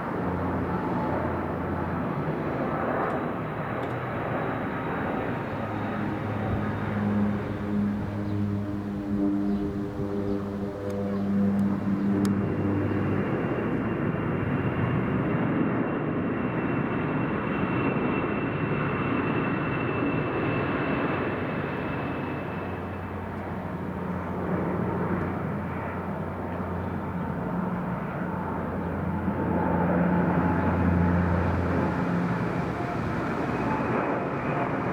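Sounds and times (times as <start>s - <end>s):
aircraft engine rush: 0.0s - 34.9s
thin high whine: 21.4s - 34.0s.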